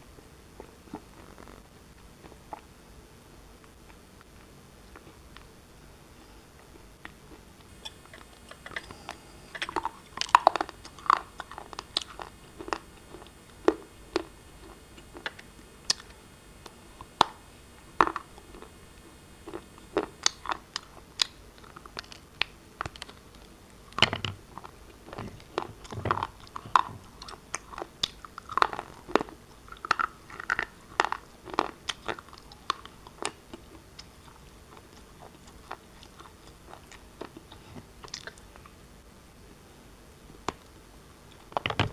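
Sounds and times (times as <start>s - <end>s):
shale being chewed and crunched: 7.0s - 17.4s, 19.4s - 38.8s.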